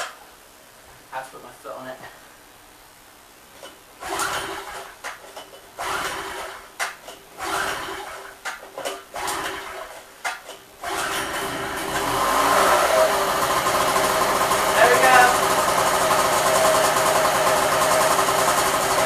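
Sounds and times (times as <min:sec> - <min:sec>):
generator pull-starter whirring: 0:04.0 - 0:05.2, 0:05.8 - 0:10.0, 0:10.8 - 0:19.0.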